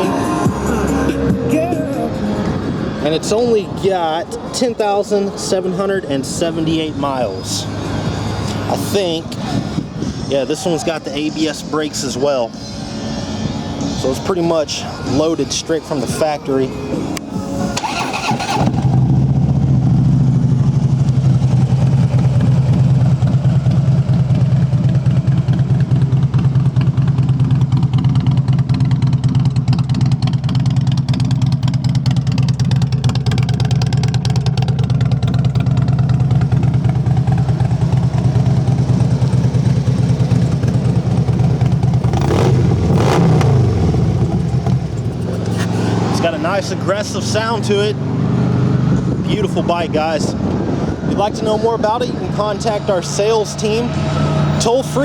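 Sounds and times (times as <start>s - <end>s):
motorcycle engine idling: 17.8s - 47.9s.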